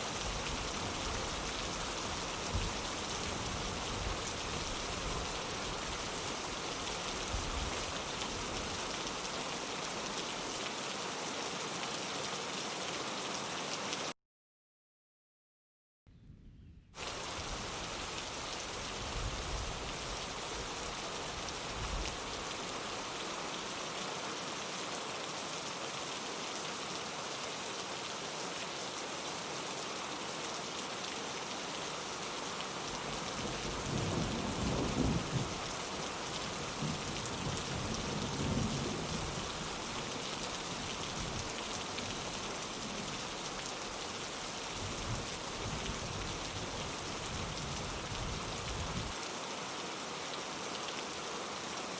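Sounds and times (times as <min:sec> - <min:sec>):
rain on a window: 0:00.0 - 0:14.1, 0:17.0 - 0:51.9.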